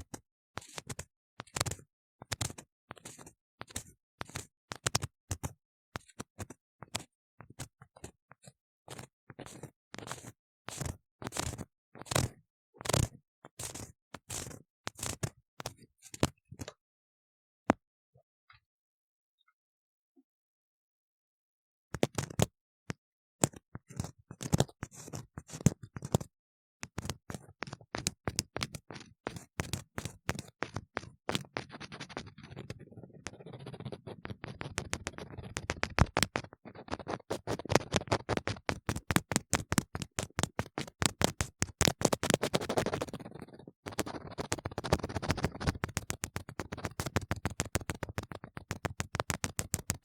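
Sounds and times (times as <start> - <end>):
tool scratching inside ear model: 0.6 - 5.1, 8.0 - 12.4, 13.0 - 16.2, 27.1 - 50.0.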